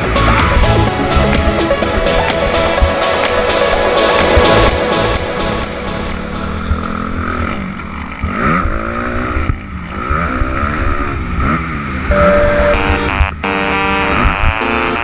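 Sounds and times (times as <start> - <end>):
electronic music: 0.0 - 8.6, 12.1 - 15.0
motocross bike engine revving: 0.0 - 14.9.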